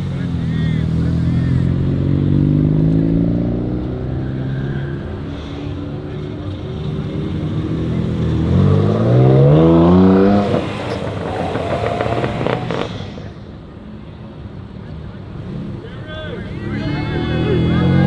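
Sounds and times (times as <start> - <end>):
car engine revving: 0.0 - 14.6, 15.2 - 18.0
engine crackles: 0.0 - 18.0.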